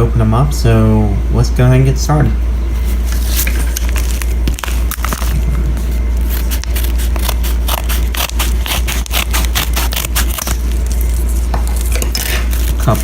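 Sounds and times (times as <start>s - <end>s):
low hum: 0.0s - 13.0s
packaging crinkling: 2.8s - 13.0s.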